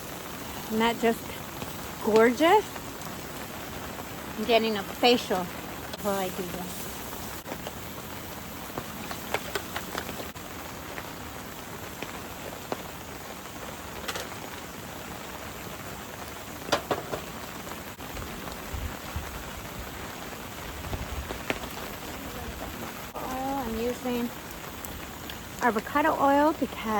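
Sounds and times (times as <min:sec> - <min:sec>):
steady rain falling: 0:00.0 - 0:26.9
heavy drops tapping: 0:16.7 - 0:17.4.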